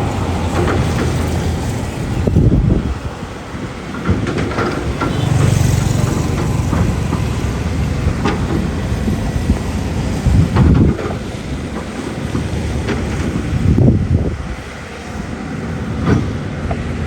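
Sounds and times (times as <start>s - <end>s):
excavator diesel engine rumbling: 0.0s - 17.0s
metal knocks and clanks: 3.8s - 13.8s.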